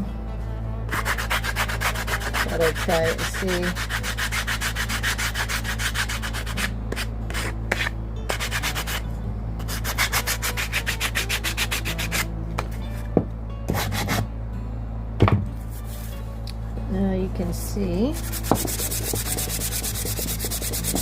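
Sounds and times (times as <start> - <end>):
steady low hum: 0.0 - 21.0
sandpaper rubbing on wood: 0.9 - 9.0, 9.7 - 12.3, 18.2 - 21.0.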